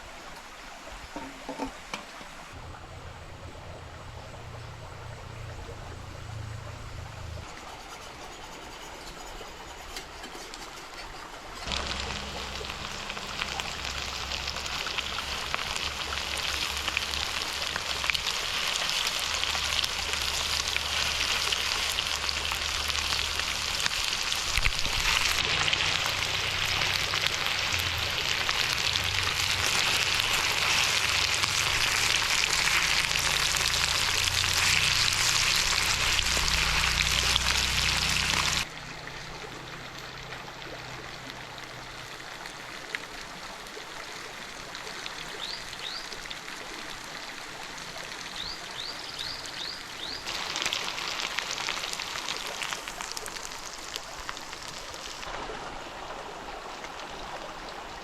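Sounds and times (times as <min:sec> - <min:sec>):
food sizzling in a pan: 0:11.6 - 0:38.7, 0:50.0 - 0:55.3.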